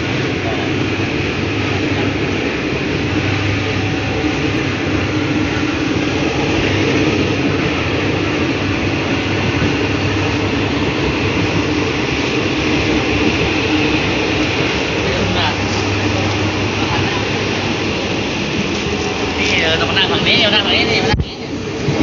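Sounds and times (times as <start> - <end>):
low hum: 0.0 - 20.2
train rumbling on track: 0.0 - 22.0.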